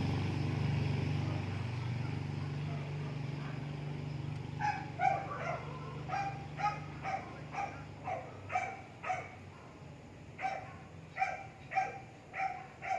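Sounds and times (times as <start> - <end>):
dog barking: 4.6 - 9.8, 10.4 - 12.9.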